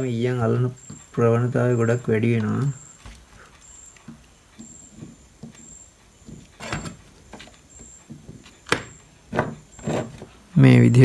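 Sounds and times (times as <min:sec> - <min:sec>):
faint high chirp: 0:00.0 - 0:10.1.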